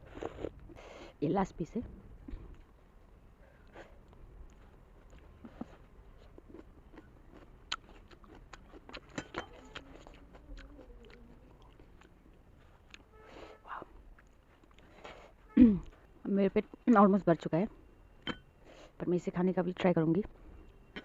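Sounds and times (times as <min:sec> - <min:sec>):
wet chewing mouth clicks: 0:04.0 - 0:12.2.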